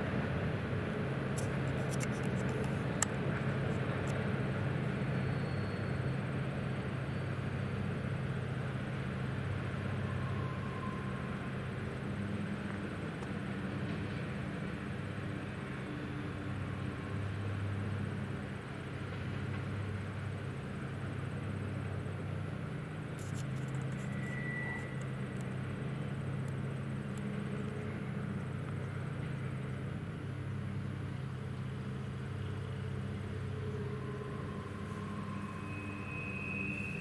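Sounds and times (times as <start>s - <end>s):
distant freight train rumble: 0.0s - 37.0s
high-pitched squeal: 9.7s - 12.2s, 23.2s - 25.2s, 33.2s - 37.0s.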